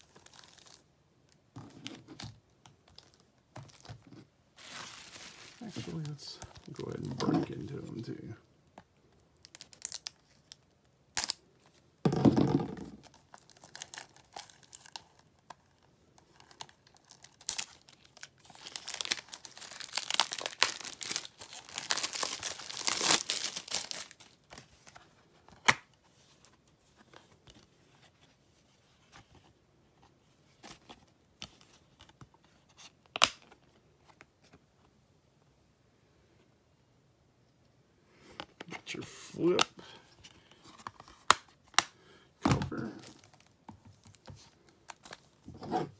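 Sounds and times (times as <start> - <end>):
plastic wrap tearing and crinkling: 4.6 - 7.6, 9.4 - 11.4, 13.2 - 15.3, 16.4 - 24.6.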